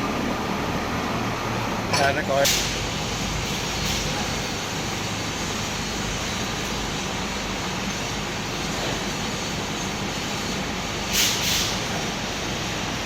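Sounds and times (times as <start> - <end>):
steady mechanical noise: 0.0 - 13.0
hissing burst: 11.0 - 11.9.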